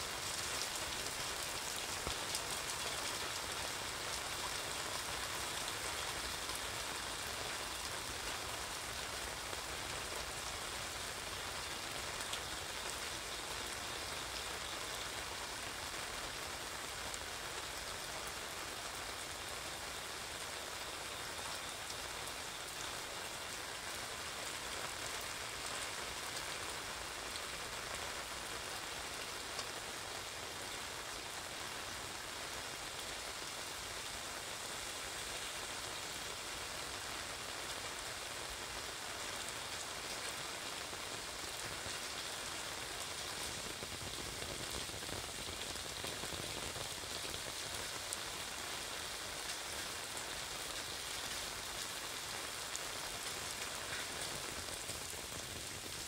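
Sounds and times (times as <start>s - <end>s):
rain drumming on umbrella: 0.0s - 13.3s, 36.8s - 56.0s
heavy rain on wet street: 0.0s - 56.0s.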